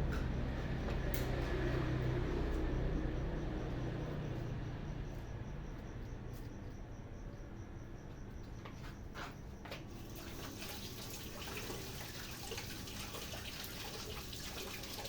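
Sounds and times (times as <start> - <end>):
water running and splashing: 10.0 - 15.0.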